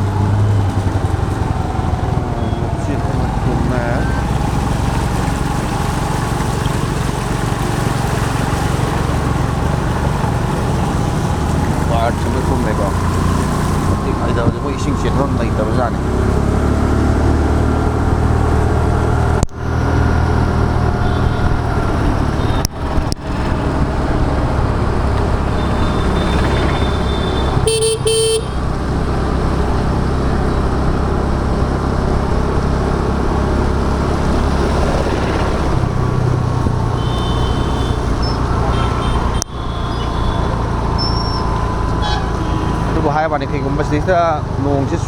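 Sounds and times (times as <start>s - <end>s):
scooter engine and road noise: 0.0s - 45.0s
vehicle horn honking: 21.0s - 21.6s, 25.5s - 28.7s, 36.9s - 42.9s.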